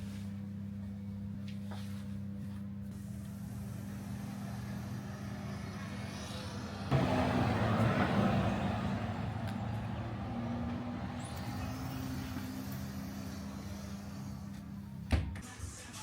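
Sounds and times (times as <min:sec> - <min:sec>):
vehicle engine humming: 0:00.0 - 0:15.1
loud rushing noise: 0:06.9 - 0:09.4.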